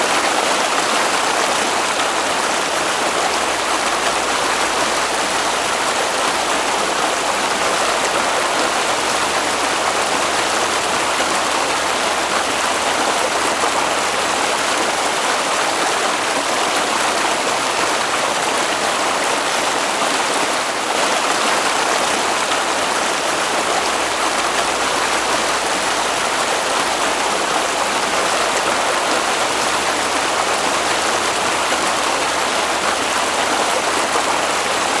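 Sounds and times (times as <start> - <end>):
stream water rushing: 0.0 - 35.0.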